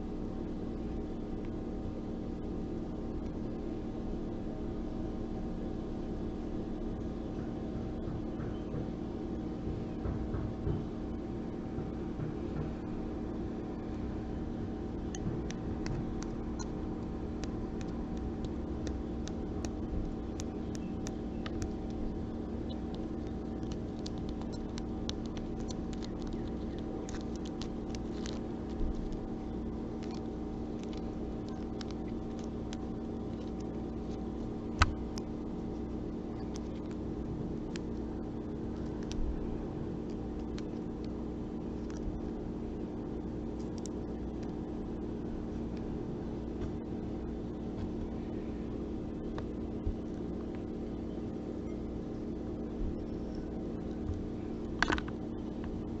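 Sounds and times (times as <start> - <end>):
steady low hum: 0.0 - 56.0
small clicks: 15.0 - 39.4, 40.0 - 42.4, 43.5 - 44.7, 53.2 - 55.8.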